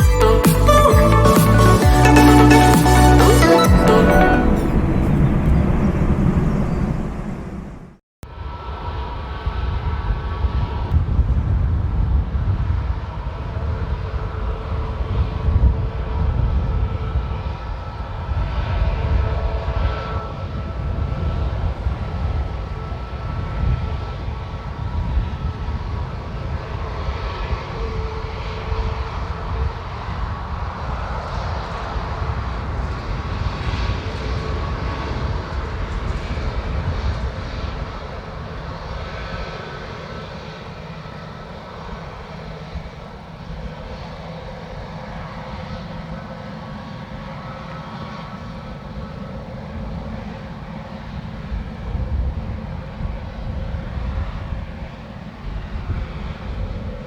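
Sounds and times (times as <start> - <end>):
jet engines rumbling with whine: 4.1 - 57.0.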